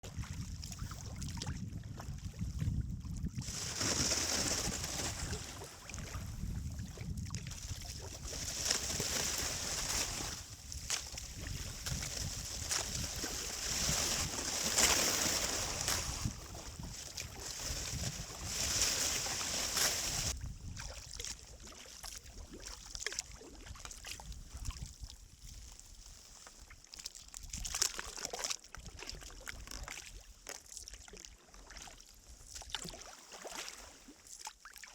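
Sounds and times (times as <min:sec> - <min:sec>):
wind rumble on microphone: 0:00.0 - 0:21.6, 0:23.7 - 0:26.2
kayak paddle splashing water: 0:03.4 - 0:24.0.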